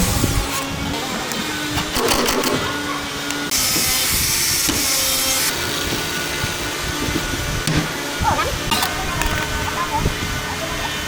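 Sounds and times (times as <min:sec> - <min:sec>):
woodworking machinery running: 0:00.0 - 0:11.0
sharp clicks: 0:01.3 - 0:02.6.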